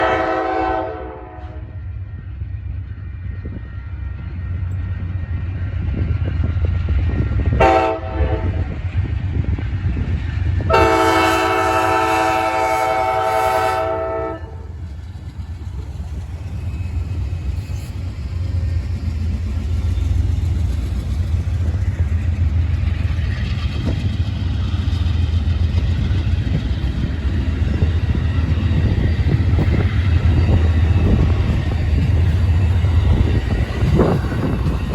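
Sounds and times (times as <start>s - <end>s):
train air horn blasts: 0.0s - 1.8s, 7.6s - 8.8s, 10.7s - 14.7s
diesel locomotive engine rumble: 0.0s - 34.9s.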